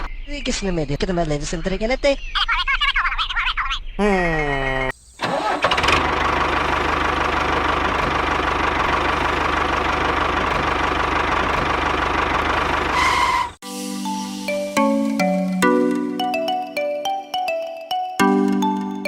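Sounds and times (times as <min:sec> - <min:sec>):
small tractor engine idling: 0:05.2 - 0:13.2.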